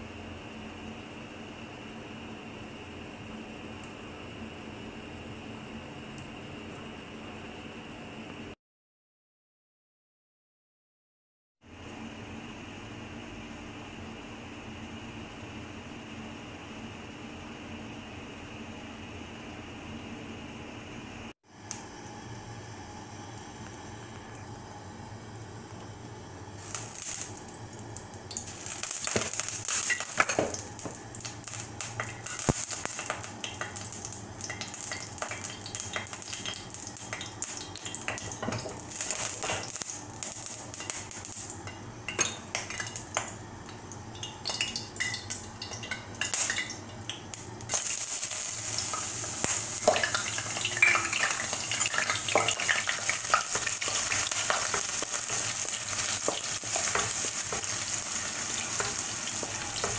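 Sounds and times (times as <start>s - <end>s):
food sizzling in a pan: 26.6s - 43.4s, 44.4s - 59.9s.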